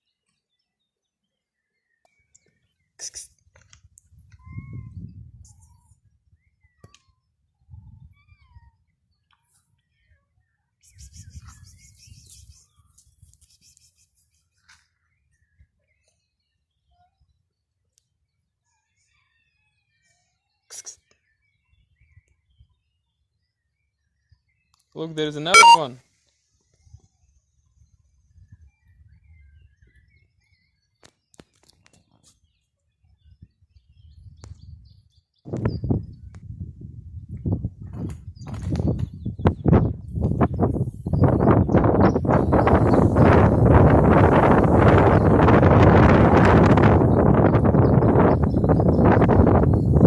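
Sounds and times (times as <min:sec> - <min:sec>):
faint small bird chirps: 0:04.2 - 0:25.9.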